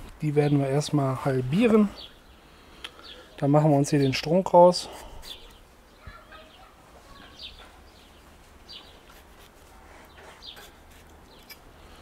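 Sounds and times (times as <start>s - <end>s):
faint bird chirps: 5.2s - 9.1s.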